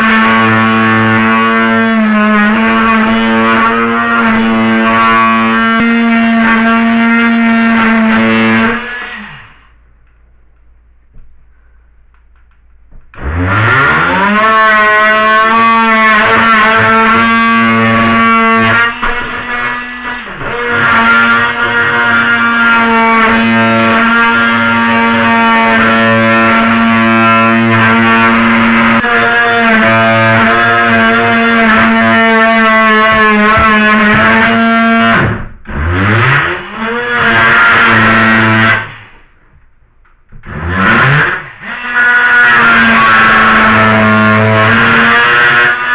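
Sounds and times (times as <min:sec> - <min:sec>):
rotary tool whining while cutting: 0:13.3 - 0:39.1, 0:40.4 - 0:45.9.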